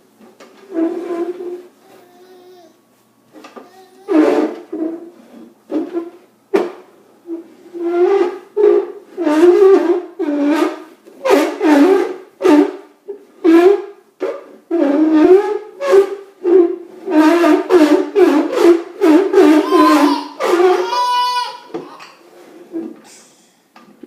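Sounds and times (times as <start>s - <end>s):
toddler yelling and hooting: 1.8s - 2.8s, 3.6s - 4.3s, 19.4s - 22.2s.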